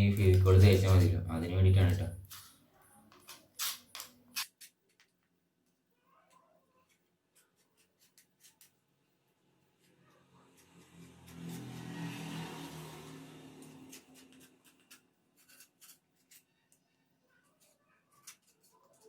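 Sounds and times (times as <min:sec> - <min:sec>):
handling clicks and scrapes: 0:02.2 - 0:05.1, 0:13.6 - 0:16.8, 0:17.4 - 0:19.0.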